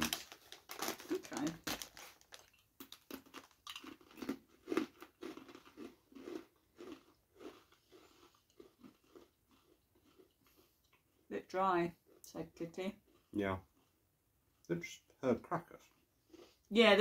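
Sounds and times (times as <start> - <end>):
crunchy crackers being chewed: 0.0 - 11.2.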